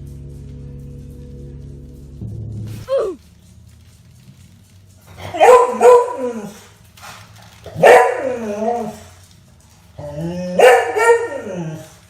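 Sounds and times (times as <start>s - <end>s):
dog barking: 5.2s - 6.6s, 7.7s - 9.0s, 10.6s - 11.8s.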